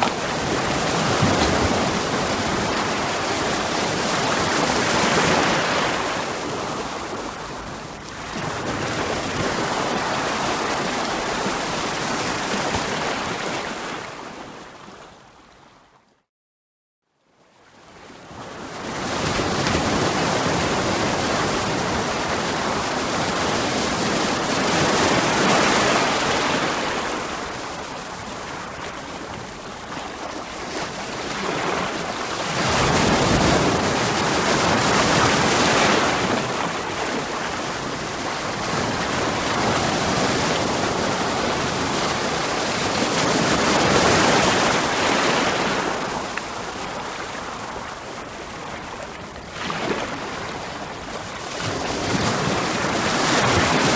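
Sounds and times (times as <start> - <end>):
ocean waves breaking on rocks: 0.0 - 7.4, 18.8 - 53.9.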